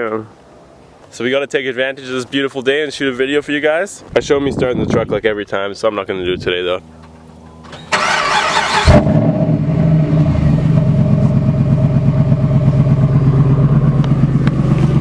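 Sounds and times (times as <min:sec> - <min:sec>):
diesel engine cranking: 0:07.0 - 0:15.0
diesel engine idling: 0:07.8 - 0:15.0.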